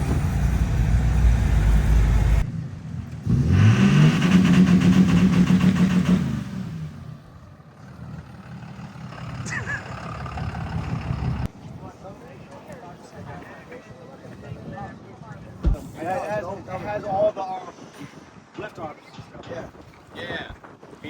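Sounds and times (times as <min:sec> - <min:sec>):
low rumble: 0:00.0 - 0:03.5
truck engine revving: 0:00.0 - 0:11.5.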